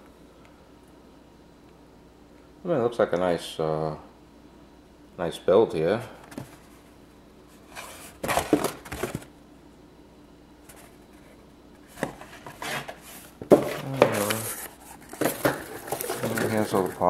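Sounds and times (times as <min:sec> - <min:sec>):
plastic parts rustling and knocking: 0:07.7 - 0:09.3, 0:11.9 - 0:17.0.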